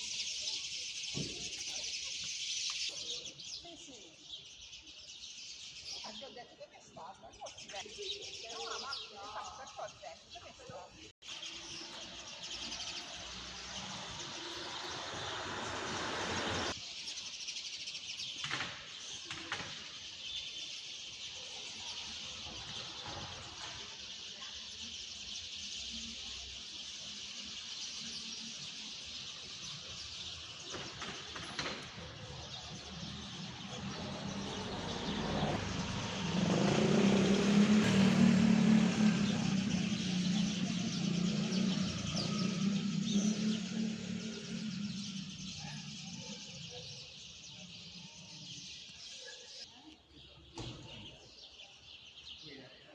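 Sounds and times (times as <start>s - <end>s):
small birds chirping: 0.0s - 52.9s
car engine low rumble: 13.2s - 16.8s.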